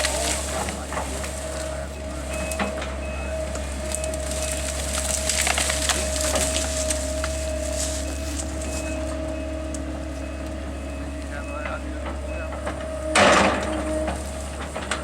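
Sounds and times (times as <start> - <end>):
wood cracking and splintering: 0.0 - 9.0
machinery drone and whine: 0.0 - 15.0.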